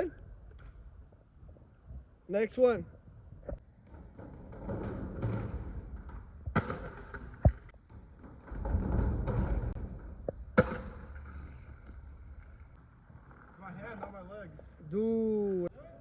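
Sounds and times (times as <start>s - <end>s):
skateboard wheels rolling on concrete: 3.4s - 15.2s.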